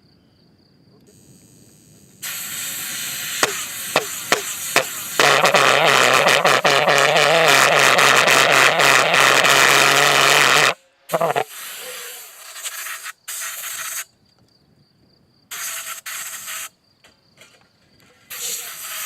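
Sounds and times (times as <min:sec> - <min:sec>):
rushing hiss of air: 0:01.2 - 0:07.3, 0:10.2 - 0:14.1, 0:15.5 - 0:16.7, 0:18.3 - 0:19.0
sharp engine pops: 0:03.3 - 0:11.4.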